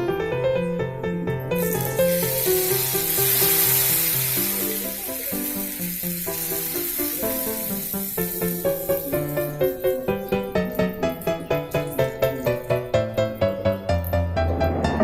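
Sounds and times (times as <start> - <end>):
piano background music: 0.0 - 15.0
food sizzling in oil: 1.6 - 9.8.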